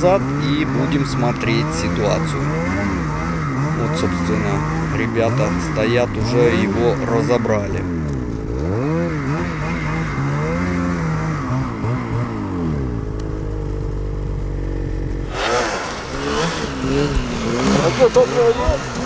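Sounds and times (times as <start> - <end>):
snowmobile engines running: 0.0 - 19.0
hissy engine revving: 15.2 - 19.0.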